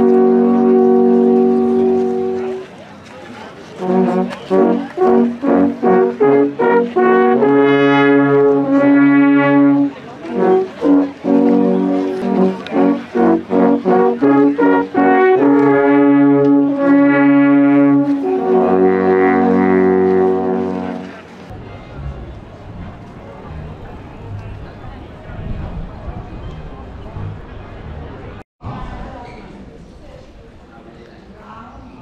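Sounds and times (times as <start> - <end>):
brass band playing: 0.0 - 2.7, 3.7 - 24.7.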